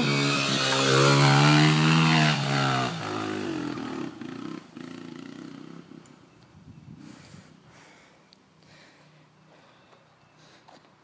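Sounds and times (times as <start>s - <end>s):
dirt bike engine revving: 0.0s - 6.0s.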